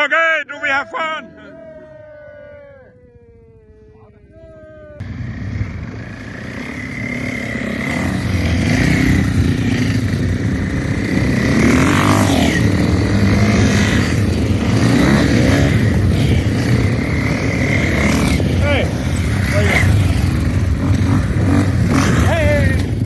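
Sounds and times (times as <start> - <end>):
motocross bike engines revving: 4.8 - 23.0.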